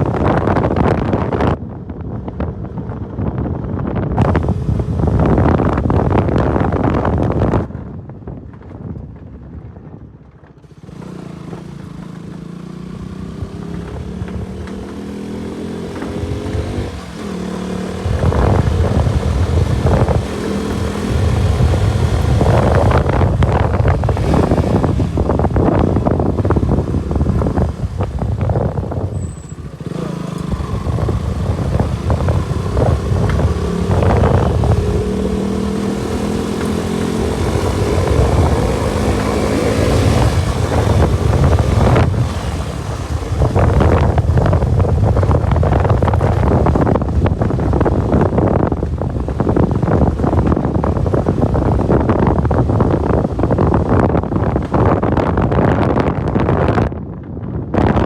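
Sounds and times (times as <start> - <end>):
wind buffeting microphone: 0.0 - 58.0
motorcycle engine revving: 10.6 - 58.0.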